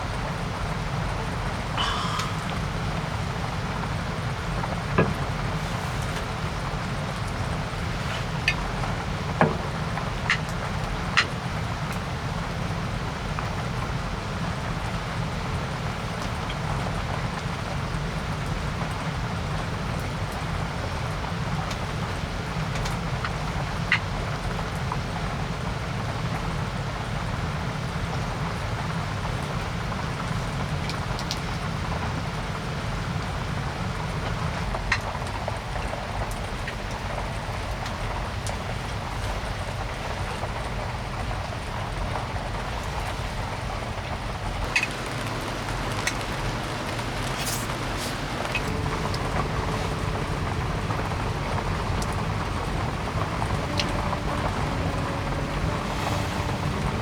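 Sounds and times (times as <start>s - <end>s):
heavy rain: 0.0s - 25.2s, 37.0s - 57.0s
low rumble: 44.6s - 57.0s.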